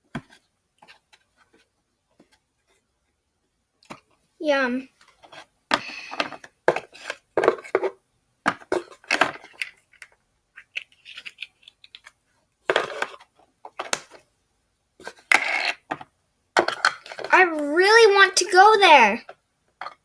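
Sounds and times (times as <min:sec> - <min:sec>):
plastic toys clicking and rattling: 0:08.9 - 0:14.0.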